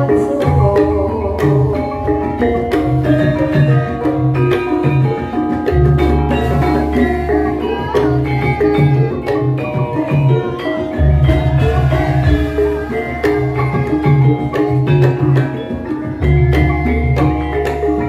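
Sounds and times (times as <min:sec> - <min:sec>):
metallophone notes: 0:00.0 - 0:18.0
deep sustained low tones: 0:11.0 - 0:14.4
low drum strokes: 0:11.0 - 0:14.8.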